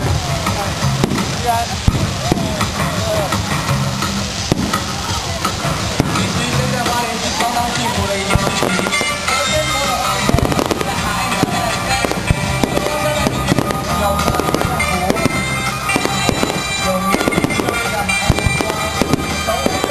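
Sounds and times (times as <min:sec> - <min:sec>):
fireworks bangs and crackles: 0:00.0 - 0:19.9
music playing: 0:00.0 - 0:19.9.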